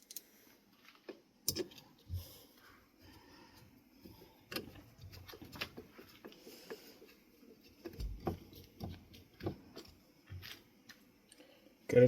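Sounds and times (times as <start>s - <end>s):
light knocks and clicks of parts: 3.6s - 11.5s.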